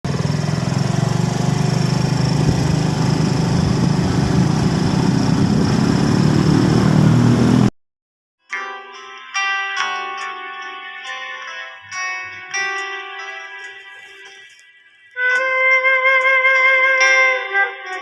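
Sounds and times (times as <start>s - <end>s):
small engine running: 0.1s - 7.7s
plucked guitar music: 8.4s - 18.0s.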